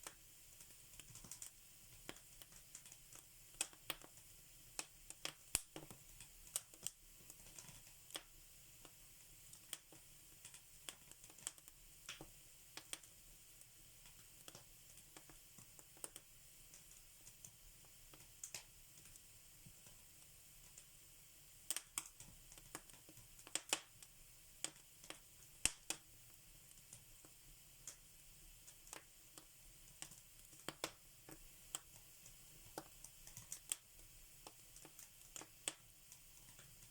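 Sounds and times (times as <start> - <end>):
faint steady hiss: 0.0 - 36.9
wood fire crackling: 0.0 - 36.9.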